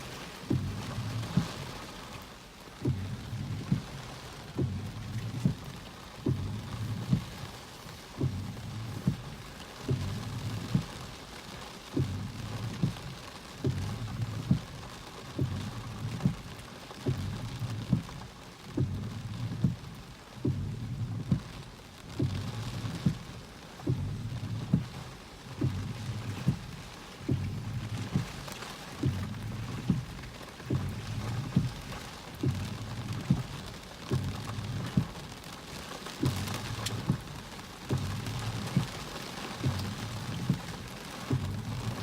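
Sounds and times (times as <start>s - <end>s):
rain falling: 0.0s - 42.0s
low thumps: 0.4s - 1.6s, 2.8s - 7.4s, 8.2s - 11.0s, 12.0s - 13.0s, 18.8s - 35.2s, 36.2s - 39.0s, 39.6s - 42.0s.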